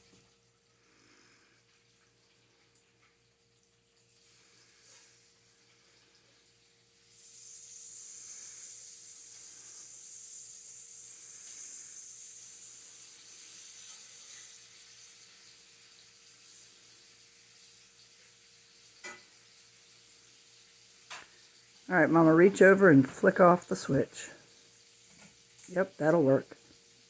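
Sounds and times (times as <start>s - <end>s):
hiss: 4.2s - 21.8s.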